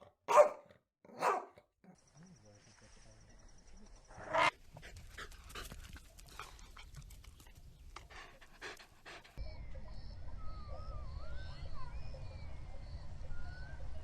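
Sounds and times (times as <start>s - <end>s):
dog barking: 0.3s - 1.6s
dog panting: 4.7s - 9.4s.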